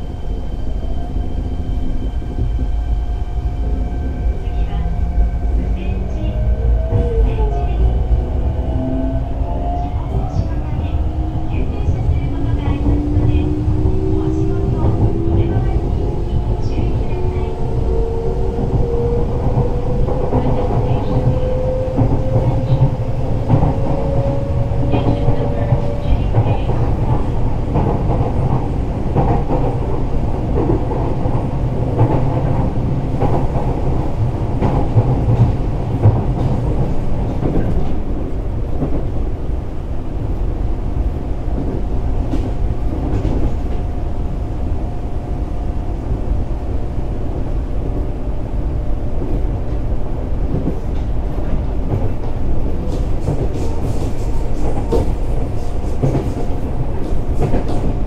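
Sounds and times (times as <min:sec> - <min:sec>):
train wheels rumbling: 0:00.0 - 0:58.0.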